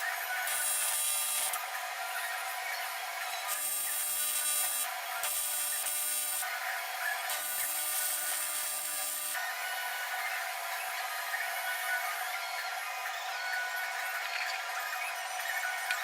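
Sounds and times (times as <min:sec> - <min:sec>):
welding arc hissing and buzzing: 0:00.0 - 0:01.6, 0:03.4 - 0:09.4
welding machine hum: 0:00.0 - 0:01.6, 0:02.4 - 0:09.4.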